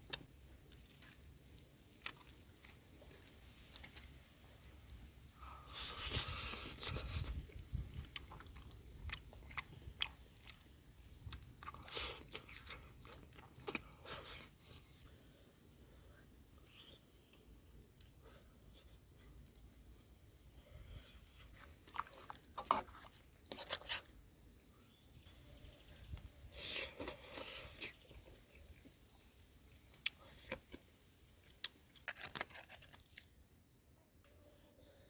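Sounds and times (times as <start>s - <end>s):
person chewing crunchy food: 0.0s - 4.4s, 5.0s - 15.0s, 20.9s - 24.2s, 25.6s - 29.0s, 29.8s - 33.4s.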